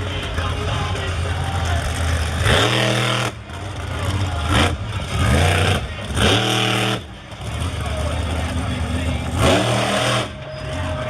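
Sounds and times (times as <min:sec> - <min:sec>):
monster truck engine revving: 0:00.0 - 0:11.0.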